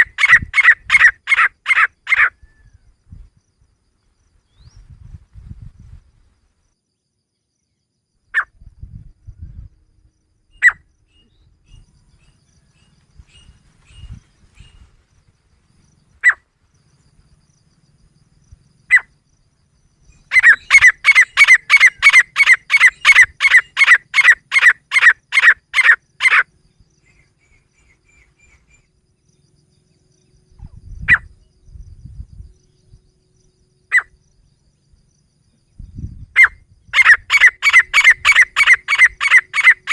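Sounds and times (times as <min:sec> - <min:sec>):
bird calling piercing notes: 0:00.0 - 0:02.8, 0:20.1 - 0:28.9, 0:36.4 - 0:39.9.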